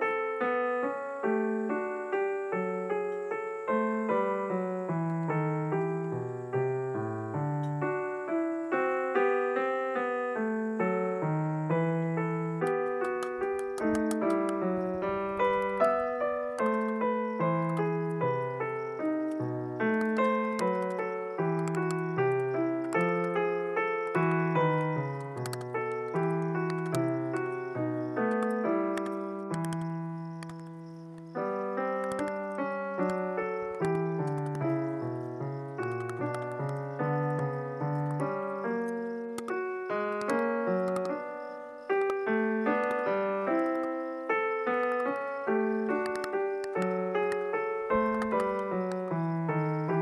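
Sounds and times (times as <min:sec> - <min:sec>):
piano music: 0:00.0 - 0:50.0
faint sharp clicks: 0:12.6 - 0:14.9, 0:15.5 - 0:17.0, 0:17.6 - 0:18.2, 0:19.0 - 0:21.0, 0:21.6 - 0:23.4, 0:24.8 - 0:27.6, 0:28.2 - 0:31.4, 0:32.0 - 0:34.8, 0:35.8 - 0:41.3, 0:41.9 - 0:43.0, 0:43.6 - 0:44.0, 0:44.7 - 0:45.3, 0:45.9 - 0:49.2.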